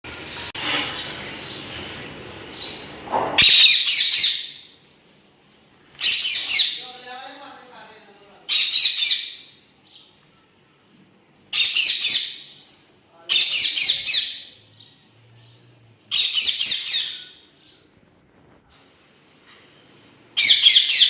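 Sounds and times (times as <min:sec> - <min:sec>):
parrots squawking: 0:03.3 - 0:04.7, 0:06.0 - 0:07.0, 0:08.5 - 0:09.6, 0:11.5 - 0:12.7, 0:13.3 - 0:14.9, 0:16.1 - 0:17.5, 0:20.4 - 0:21.0.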